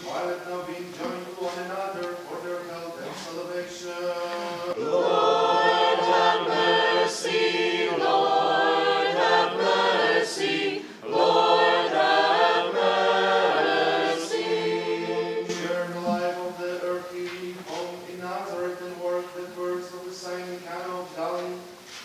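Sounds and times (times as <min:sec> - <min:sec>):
choir singing a cappella: 0:03.2 - 0:20.1.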